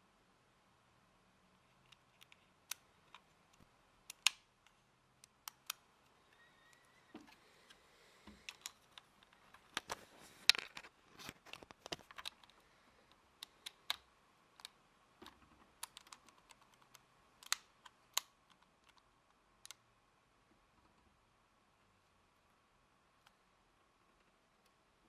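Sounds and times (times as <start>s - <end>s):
plastic parts clicking and rattling: 1.6s - 6.2s, 7.2s - 19.8s.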